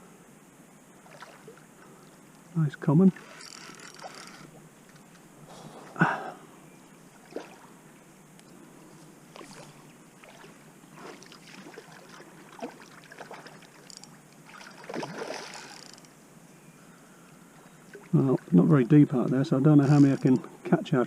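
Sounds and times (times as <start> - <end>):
fish splashing in a net: 9.4 - 15.8.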